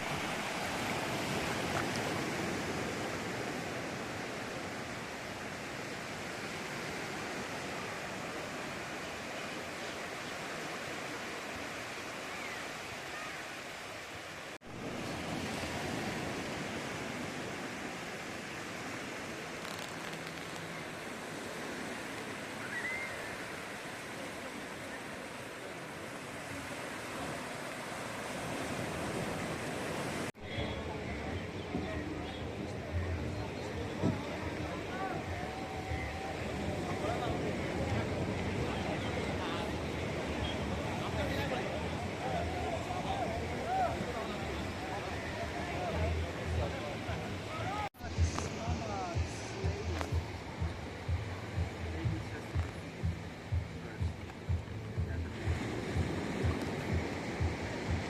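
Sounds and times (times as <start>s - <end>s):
waves washing onto sand: 0.0s - 58.0s.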